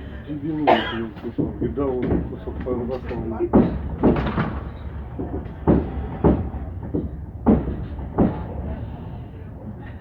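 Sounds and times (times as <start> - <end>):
low rumble of moving train: 0.0 - 10.0
train wheels knocking over joints: 1.2 - 8.9.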